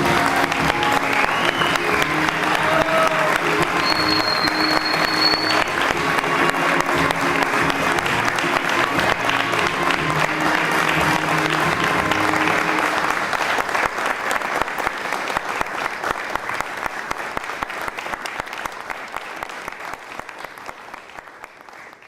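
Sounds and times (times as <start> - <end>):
music: 0.0 - 13.8
audience applauding: 0.0 - 22.0.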